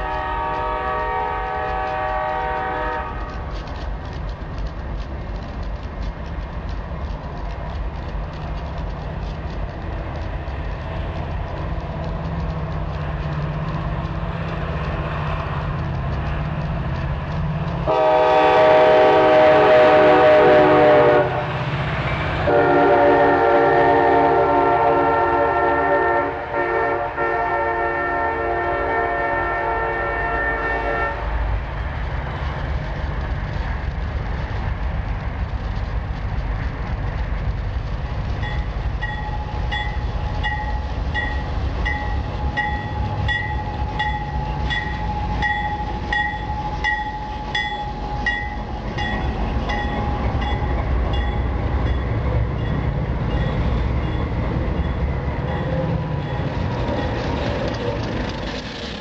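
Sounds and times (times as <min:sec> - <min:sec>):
diesel train horn: 0:00.0 - 0:03.5, 0:17.8 - 0:21.6, 0:22.4 - 0:31.5
low rumble of train: 0:00.0 - 0:59.0.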